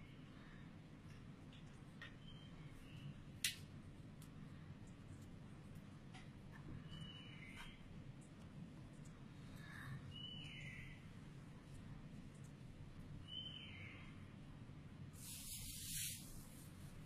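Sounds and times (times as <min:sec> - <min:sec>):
faint low room hum: 0:00.0 - 0:17.0
brief hiss: 0:15.2 - 0:16.7.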